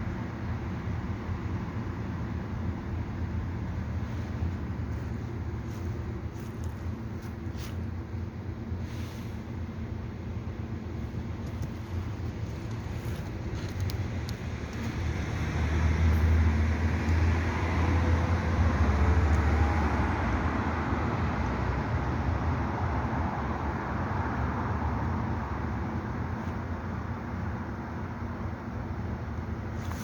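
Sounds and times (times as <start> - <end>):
road vehicle rumbling past: 11.2 - 26.2.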